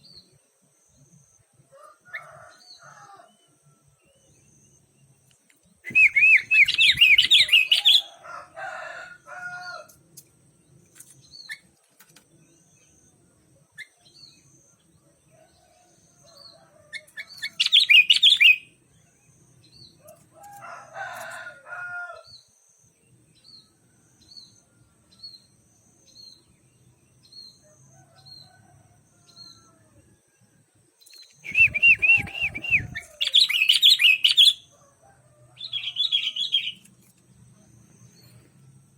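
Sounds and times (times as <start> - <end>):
soft low bird calls: 5.8 - 8.1, 31.2 - 34.6
bird warbling song: 5.8 - 8.2, 16.4 - 18.7, 31.0 - 34.7, 35.6 - 36.9.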